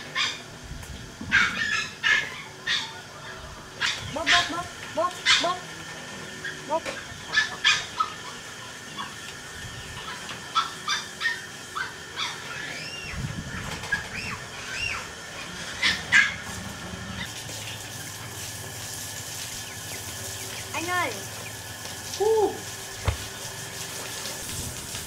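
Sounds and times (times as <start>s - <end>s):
birds chirping: 19.5s - 23.6s.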